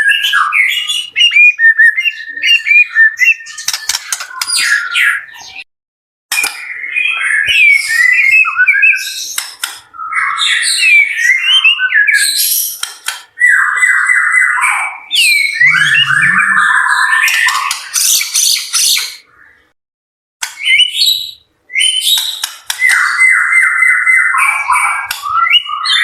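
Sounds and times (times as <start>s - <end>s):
bird singing whistles and trills: 0.0s - 5.6s, 6.4s - 9.4s, 10.0s - 12.8s, 13.4s - 17.7s, 20.6s - 26.0s.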